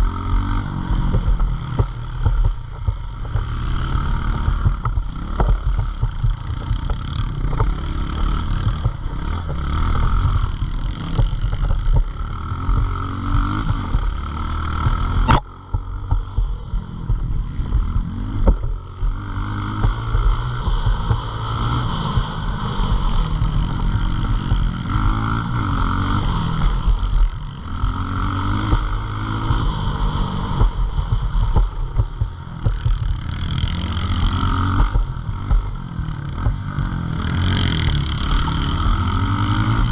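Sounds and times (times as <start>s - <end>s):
pit bike engine revving: 0.0s - 39.9s
sharp click: 14.4s - 15.6s.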